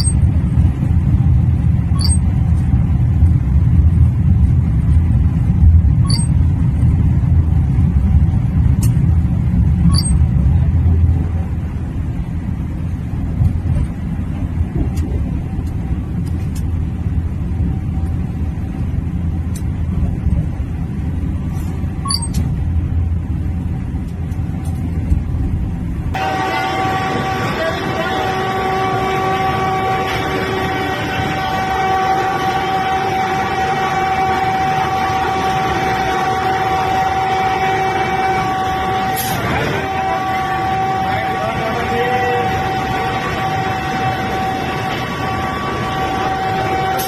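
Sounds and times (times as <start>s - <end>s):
train rumbling: 0.0s - 47.0s
faint high chirps: 2.0s - 2.2s, 9.9s - 10.2s.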